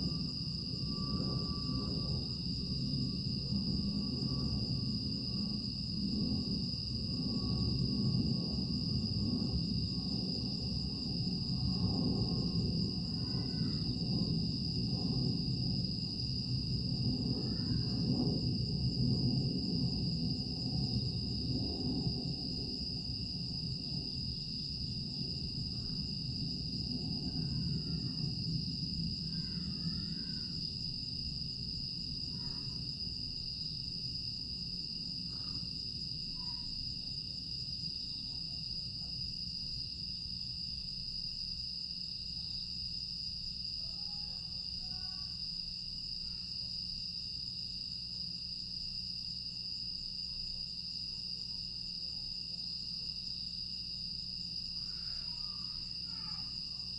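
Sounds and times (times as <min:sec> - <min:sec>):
low rumble: 0:00.0 - 0:13.1, 0:13.8 - 0:29.8
crickets trilling: 0:00.0 - 0:56.9.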